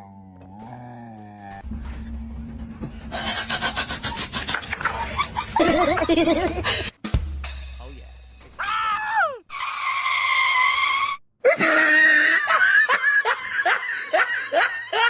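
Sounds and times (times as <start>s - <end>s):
breathless laughter: 3.0s - 6.9s
person crying out: 8.6s - 9.4s
person screaming: 8.6s - 9.4s.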